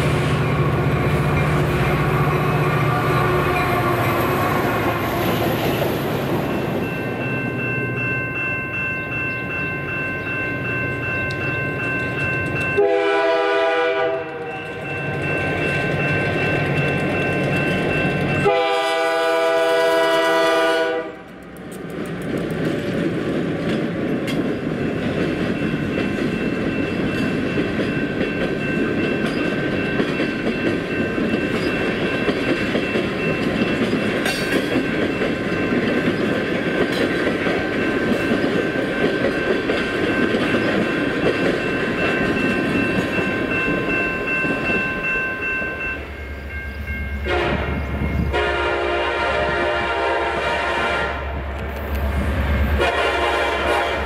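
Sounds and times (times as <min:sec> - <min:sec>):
diesel locomotive engine hum: 0:00.0 - 0:54.0
train wheels rumbling on rail: 0:00.0 - 0:54.0
train air horn chord: 0:12.8 - 0:14.7, 0:18.4 - 0:21.3, 0:47.2 - 0:51.3, 0:52.8 - 0:54.0.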